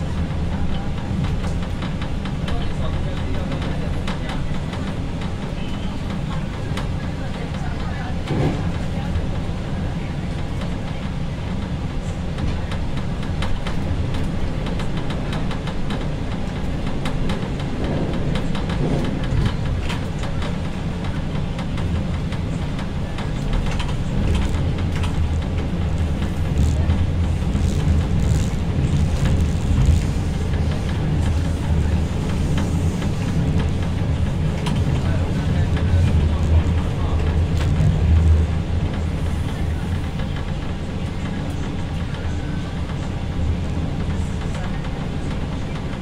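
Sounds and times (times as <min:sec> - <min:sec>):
train wheels rumbling on rails: 0:00.0 - 0:46.0
train wheel clicks and knocks: 0:12.4 - 0:39.0.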